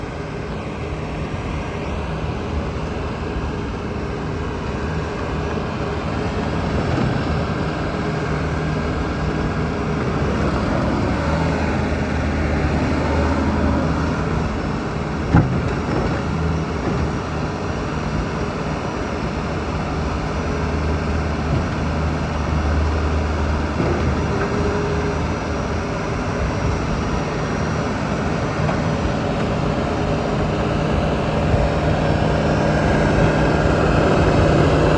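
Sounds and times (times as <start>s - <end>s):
diesel loader engine running: 0.0s - 34.9s.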